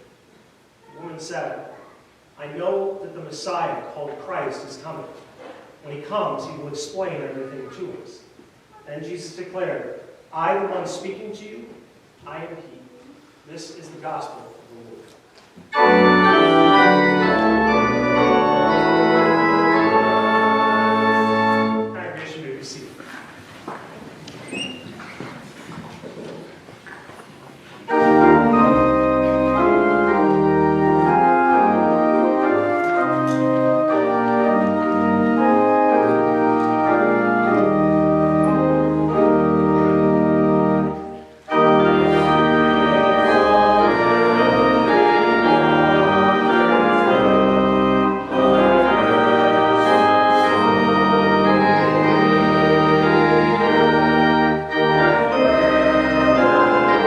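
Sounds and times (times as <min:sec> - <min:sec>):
church organ playing a hymn: 0:08.9 - 0:12.6, 0:15.7 - 0:22.8, 0:27.9 - 0:57.0.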